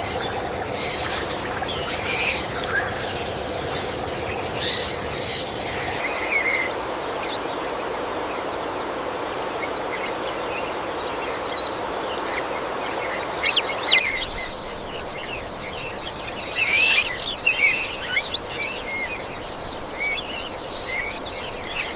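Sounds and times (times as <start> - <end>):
forest ambience hiss: 0.0 - 21.9
birds chirping: 5.8 - 21.9.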